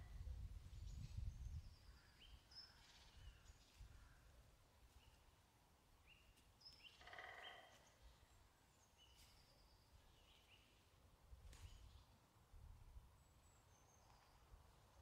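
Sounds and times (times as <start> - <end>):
low wind rumble: 0.0 - 2.2.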